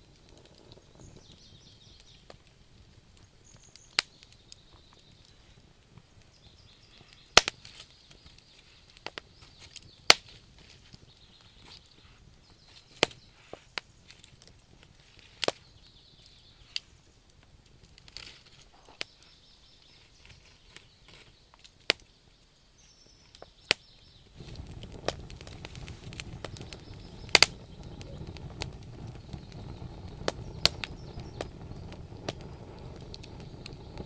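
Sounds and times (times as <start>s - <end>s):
campfire crackling: 0.0s - 34.0s
loud sharp pops from logs: 7.3s - 11.9s, 12.8s - 14.6s, 21.0s - 22.1s, 23.4s - 34.0s.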